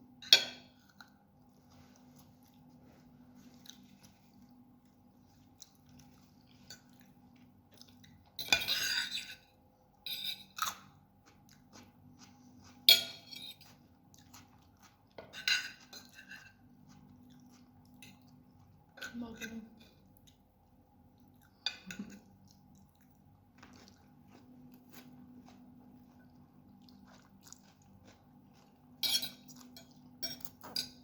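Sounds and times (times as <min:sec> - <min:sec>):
faint steady hum: 0:00.0 - 0:31.0
eating and utensil noises: 0:00.2 - 0:31.0
close chewing of noodles: 0:13.6 - 0:15.2, 0:16.5 - 0:18.9, 0:22.2 - 0:29.9.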